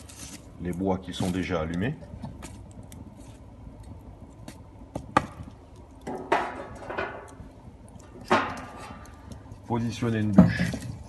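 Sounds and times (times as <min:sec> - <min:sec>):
metal fire hook knocking on logs: 0:04.9 - 0:09.4.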